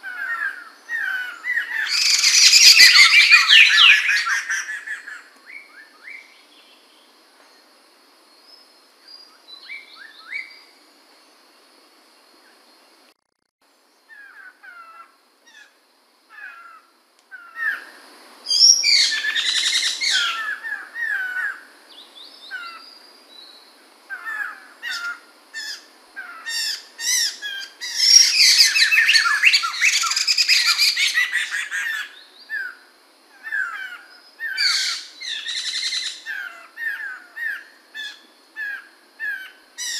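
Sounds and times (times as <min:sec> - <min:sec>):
laughingthrush calling and chattering: 0:00.0 - 0:05.3, 0:18.5 - 0:21.6, 0:24.2 - 0:32.7, 0:33.4 - 0:39.9.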